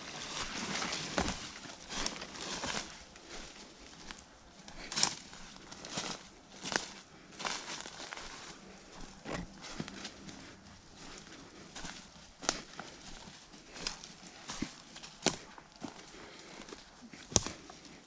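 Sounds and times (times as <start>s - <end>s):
crunching footsteps: 0.0s - 18.0s.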